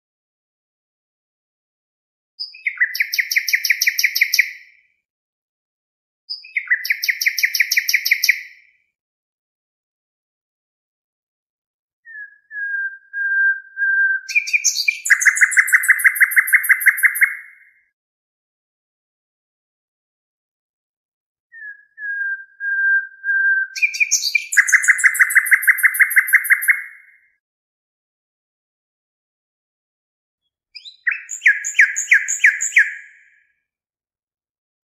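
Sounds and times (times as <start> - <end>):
bird song: 2.4 - 5.1, 6.3 - 9.0, 12.0 - 18.0, 21.5 - 27.4, 30.4 - 33.6
songbird fast trill: 14.3 - 17.5, 23.8 - 26.9.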